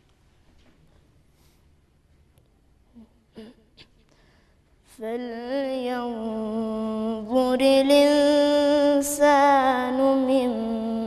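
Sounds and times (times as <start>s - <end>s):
person chanting recitation: 5.0s - 11.0s.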